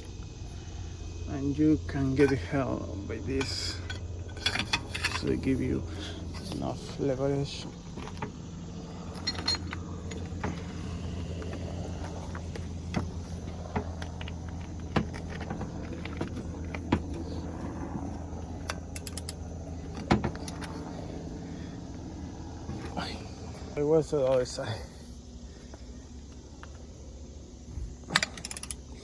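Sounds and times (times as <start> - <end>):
steady low hum: 0.0 - 29.0
metallic clinks of hand tools: 28.1 - 28.9.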